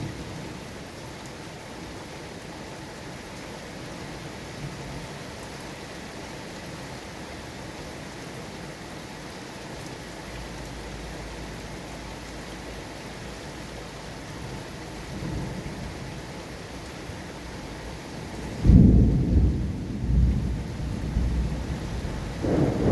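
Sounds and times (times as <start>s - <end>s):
steady rain falling: 0.0s - 22.9s
low rumble of thunder: 14.5s - 16.3s, 18.2s - 22.9s.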